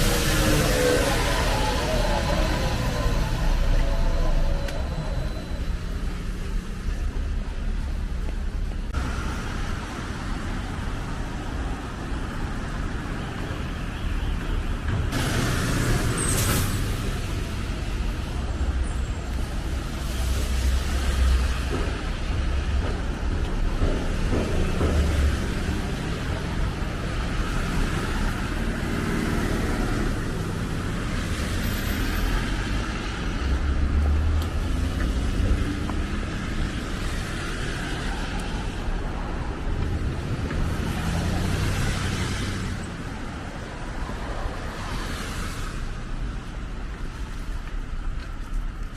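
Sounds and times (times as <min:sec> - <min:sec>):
tyres hissing on road: 0:00.0 - 0:06.7, 0:15.1 - 0:22.4
traffic engine rumble: 0:00.0 - 0:48.9.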